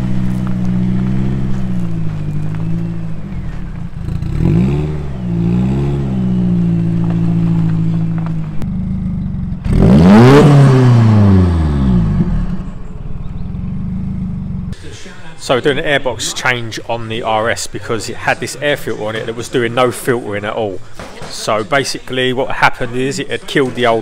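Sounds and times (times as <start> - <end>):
car engine revving: 0.0 - 14.8.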